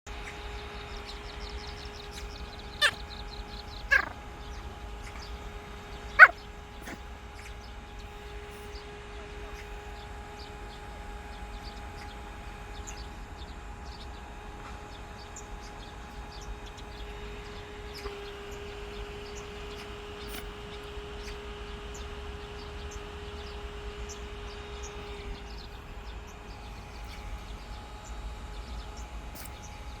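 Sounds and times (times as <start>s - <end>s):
faint steady hum: 0.1s - 30.0s
dog barking sharply: 3.9s - 4.2s, 6.2s - 7.0s.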